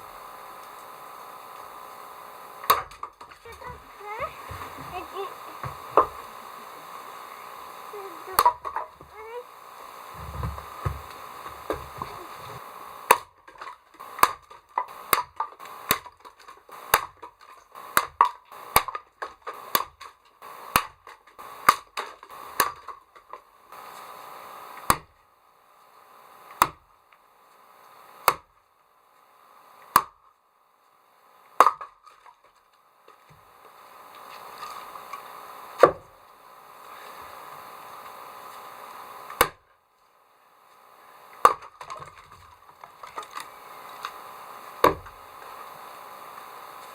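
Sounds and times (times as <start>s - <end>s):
axe chopping wood: 2.7s - 3.3s, 13.1s - 17.3s, 18.0s - 20.0s, 28.2s - 28.5s, 31.6s - 32.0s, 35.8s - 36.0s, 39.4s - 39.6s, 41.4s - 42.2s, 44.8s - 45.2s.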